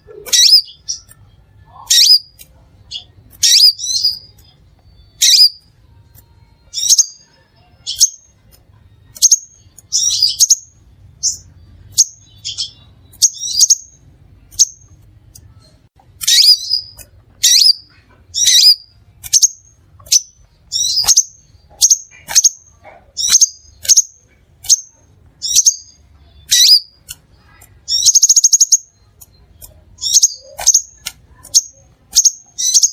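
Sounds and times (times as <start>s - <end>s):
bird buzzy trill: 0.0s - 15.1s, 16.2s - 32.9s
bird high-pitched chirps: 0.0s - 32.9s.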